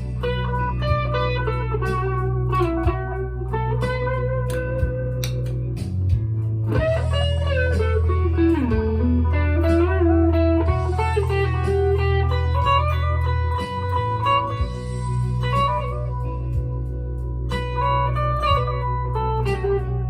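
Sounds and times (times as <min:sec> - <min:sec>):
electric guitar through an amp: 0:00.0 - 0:20.0.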